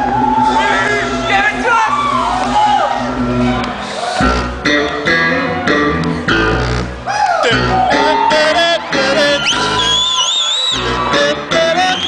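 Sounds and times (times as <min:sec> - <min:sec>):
bass: 0:00.0 - 0:12.0
live band playing: 0:00.0 - 0:12.0
electric guitar: 0:03.6 - 0:10.0.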